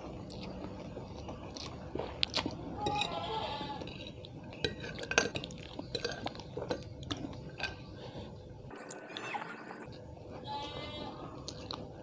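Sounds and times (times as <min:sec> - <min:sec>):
utensil clinking against dish: 0:03.8 - 0:06.9.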